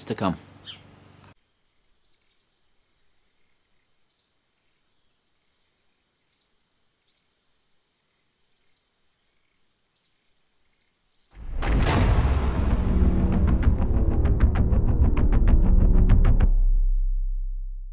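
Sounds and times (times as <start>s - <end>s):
faint steady hiss: 0.0s - 11.4s
small bird chirping: 0.4s - 11.4s
loud music with booming drum: 11.4s - 16.9s.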